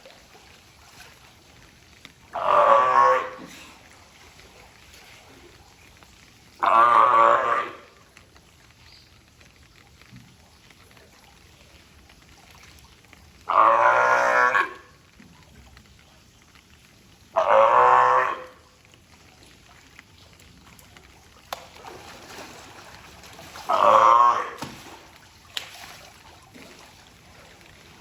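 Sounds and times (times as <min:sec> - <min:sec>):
sea lion barking: 0:23.7 - 0:24.6.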